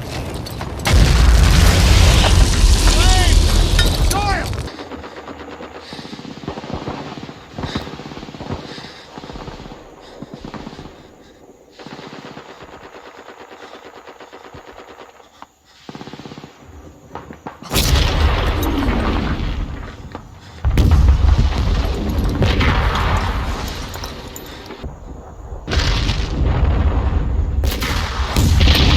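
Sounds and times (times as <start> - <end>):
gunshots: 0.0 - 24.9, 27.6 - 28.9
loud blasts: 0.7 - 11.1.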